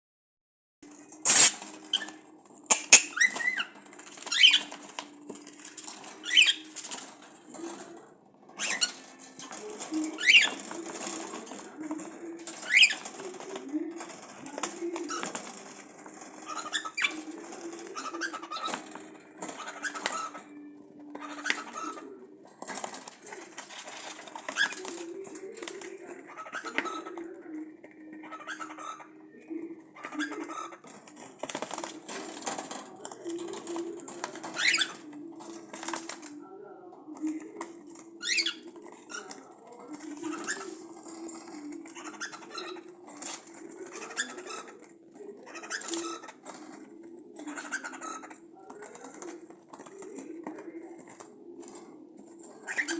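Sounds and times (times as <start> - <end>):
cockatiels chirping: 1.3 - 5.1, 6.1 - 7.0, 8.5 - 9.1, 10.1 - 10.8, 12.5 - 13.2, 16.4 - 22.2, 26.1 - 27.2, 28.0 - 31.6, 34.5 - 35.2, 38.1 - 39.5, 40.2 - 46.8, 47.4 - 49.2, 52.6 - 52.9
sharp clicks: 2.7 - 3.1
low wavering cooing: 6.1 - 52.9.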